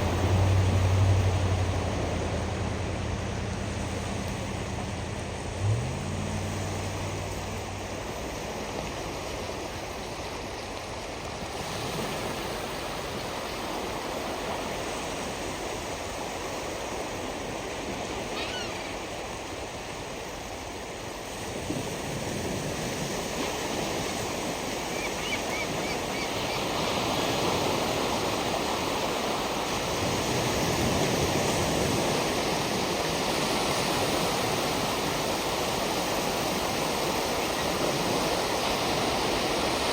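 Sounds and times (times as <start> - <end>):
surf washing onto shore: 0.0 - 39.9
faint gull calls: 18.3 - 19.2, 24.8 - 26.9.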